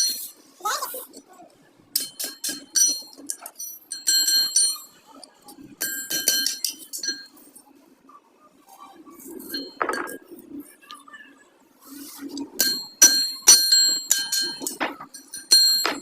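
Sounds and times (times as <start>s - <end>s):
metal tools clinking: 12.6s - 16.0s.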